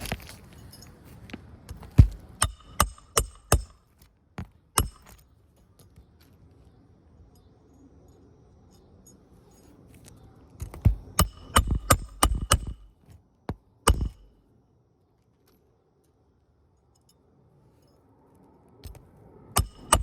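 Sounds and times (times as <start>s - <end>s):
hammer striking nails: 1.7s - 3.8s, 4.8s - 5.2s, 10.6s - 12.9s, 13.5s - 14.3s, 19.6s - 20.0s.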